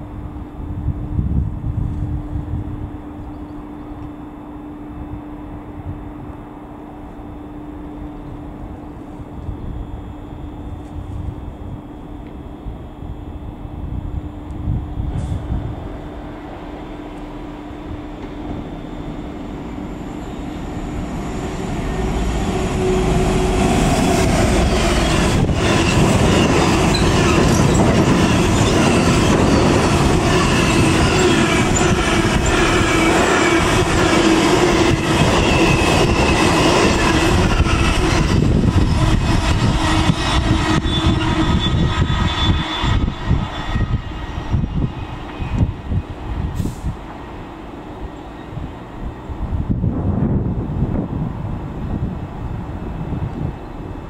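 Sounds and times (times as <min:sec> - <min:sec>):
diesel locomotive passing: 0:00.0 - 0:54.0
wheel squeal: 0:24.6 - 0:46.0.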